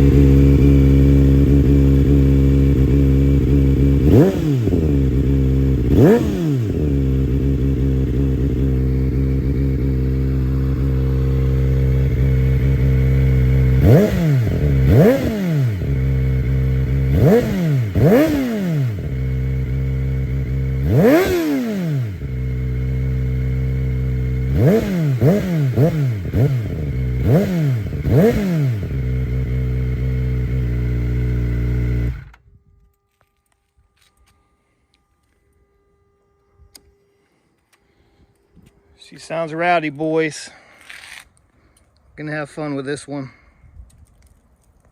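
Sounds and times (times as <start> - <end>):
motorcycle engine revving: 0.0 - 32.4.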